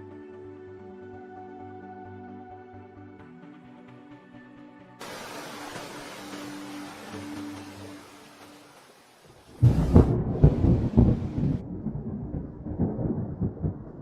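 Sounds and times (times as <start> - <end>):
background music: 0.0 - 12.0
waterfall crashing: 5.0 - 10.2.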